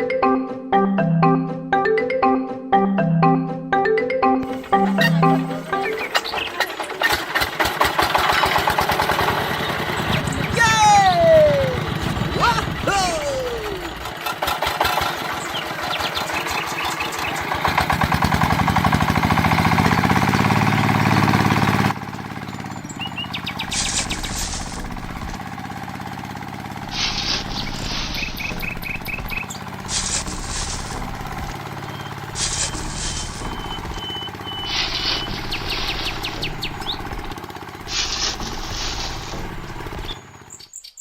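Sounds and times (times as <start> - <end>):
small tractor engine running: 4.4 - 40.8
birds chirping: 4.6 - 7.3, 9.6 - 14.2, 15.2 - 17.8, 20.0 - 25.4, 26.5 - 41.0.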